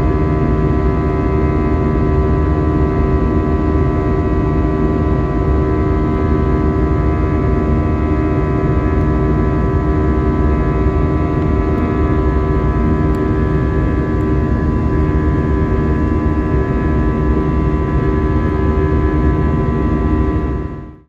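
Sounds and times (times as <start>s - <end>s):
airplane cabin engine noise: 0.0s - 21.0s.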